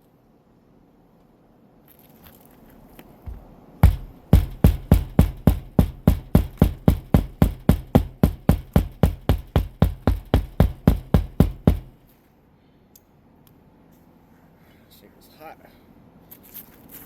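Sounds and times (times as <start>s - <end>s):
hammer driving nails: 3.3s - 12.0s.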